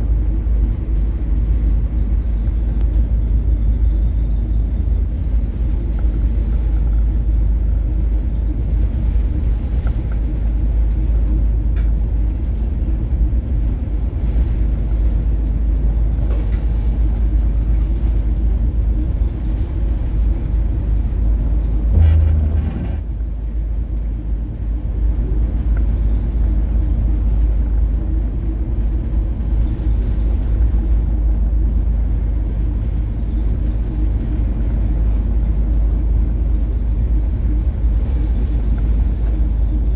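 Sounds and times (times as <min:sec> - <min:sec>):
ship engine and hull droning: 0:00.0 - 0:39.9
heavy thump: 0:22.0 - 0:23.2.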